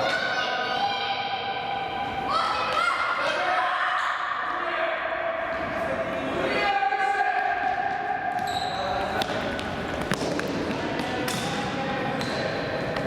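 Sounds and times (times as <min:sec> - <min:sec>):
shouting voices echoing: 0:00.0 - 0:09.6
shoe squeaks: 0:08.4 - 0:09.2.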